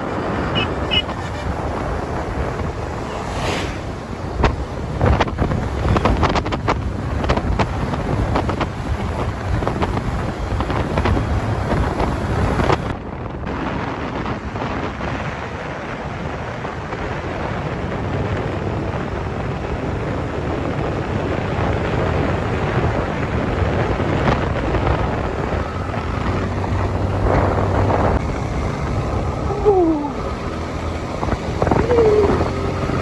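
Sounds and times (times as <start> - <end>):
motorcycle engine: 0.0 - 12.9, 25.0 - 33.0
road noise: 0.0 - 33.0
wind rushing over microphone: 0.0 - 33.0.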